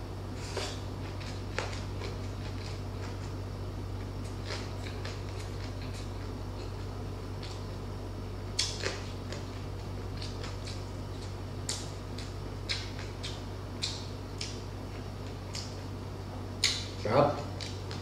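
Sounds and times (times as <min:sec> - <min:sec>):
low electrical hum: 0:00.0 - 0:18.0
chewing and mouth sounds: 0:04.2 - 0:07.6, 0:08.5 - 0:15.8, 0:16.6 - 0:18.0.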